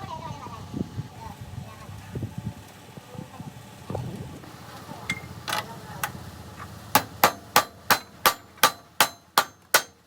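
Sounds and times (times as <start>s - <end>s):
hammer striking metal: 6.9s - 10.0s.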